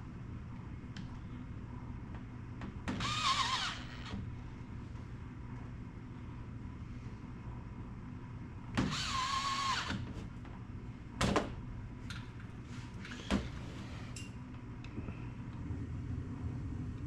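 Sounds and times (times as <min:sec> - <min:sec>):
low background hum: 0:00.0 - 0:17.0
small electric motor whirring: 0:03.0 - 0:04.2, 0:08.8 - 0:10.0.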